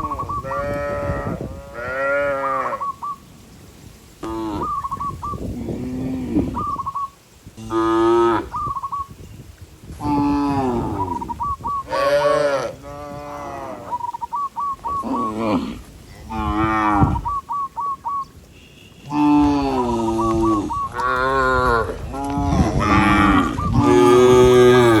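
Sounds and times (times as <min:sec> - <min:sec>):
cows mooing: 0:00.0 - 0:02.8, 0:07.6 - 0:08.5, 0:10.0 - 0:11.2, 0:11.8 - 0:14.0, 0:14.9 - 0:17.4, 0:19.0 - 0:25.0.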